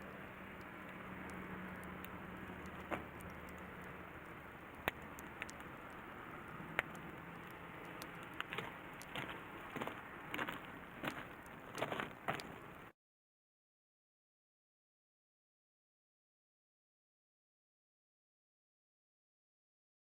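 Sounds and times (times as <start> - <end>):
campfire crackling: 0.0 - 12.9
sharp fire pops: 0.4 - 12.9.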